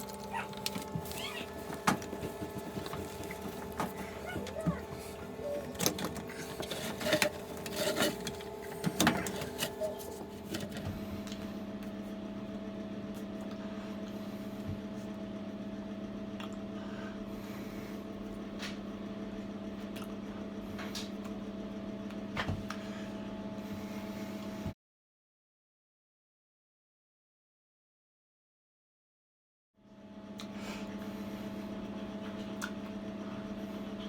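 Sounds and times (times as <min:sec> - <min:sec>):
washing machine hum: 0:00.0 - 0:24.7, 0:29.9 - 0:34.0
washing machine clicks and knocks: 0:00.1 - 0:11.0.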